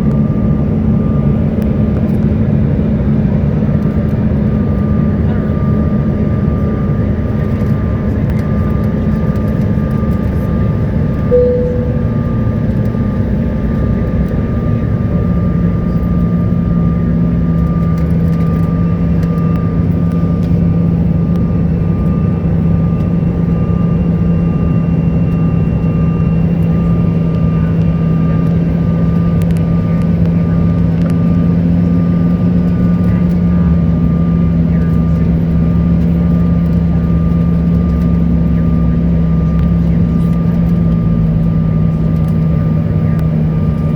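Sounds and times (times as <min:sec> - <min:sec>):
brief tone: 0:11.3 - 0:13.2
steady whine: 0:11.3 - 0:13.2.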